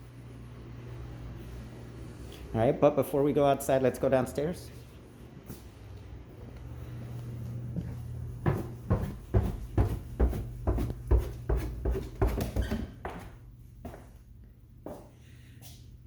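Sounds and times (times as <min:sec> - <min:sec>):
low steady hum: 0:00.0 - 0:16.0
footsteps going down stairs: 0:06.4 - 0:15.8.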